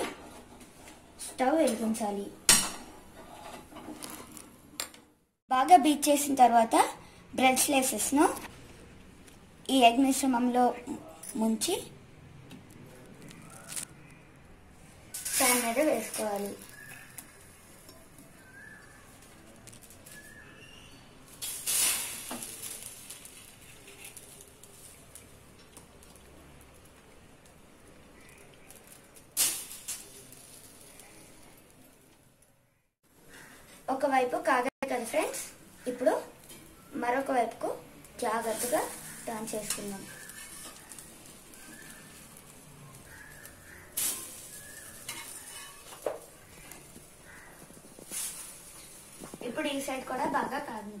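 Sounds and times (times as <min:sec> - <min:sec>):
metal spatula scraping pan: 0:02.5 - 0:04.4, 0:38.4 - 0:41.1, 0:44.0 - 0:46.1
bread sizzling on a hot pan: 0:15.1 - 0:32.2, 0:33.2 - 0:51.0.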